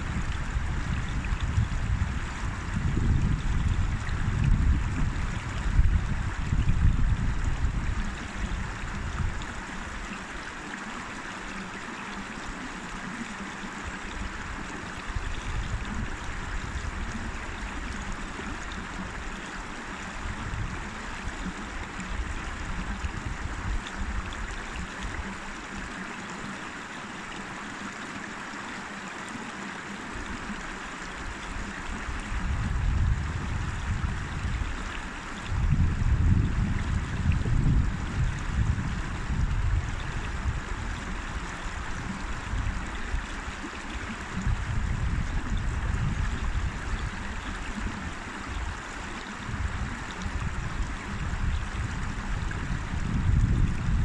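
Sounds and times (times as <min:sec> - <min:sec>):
wind rumble on microphone: 0:00.0 - 0:10.6, 0:11.5 - 0:26.0, 0:30.1 - 0:54.0
river rushing: 0:07.2 - 0:33.1, 0:38.9 - 0:53.6.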